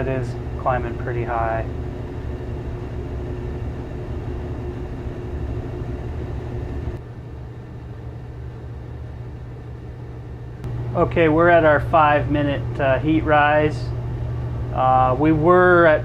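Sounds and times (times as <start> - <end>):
gas furnace rumbling: 0.0 - 16.0
steady hum: 0.0 - 16.0.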